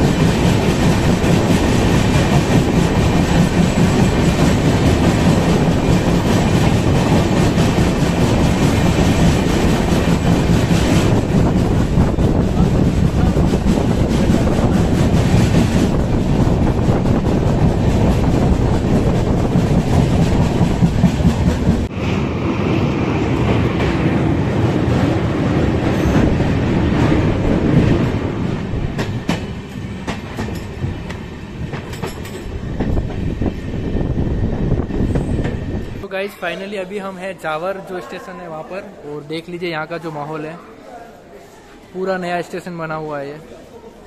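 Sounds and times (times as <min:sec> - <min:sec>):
train wheels clattering: 0:00.0 - 0:21.9, 0:24.9 - 0:33.5.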